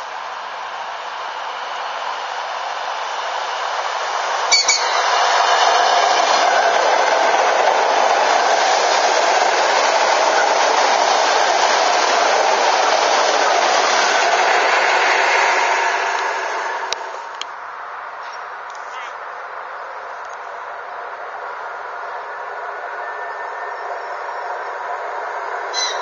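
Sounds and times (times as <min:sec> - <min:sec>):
electric train passing: 0:00.0 - 0:26.0
sharp high-pitched sound: 0:04.5 - 0:05.1.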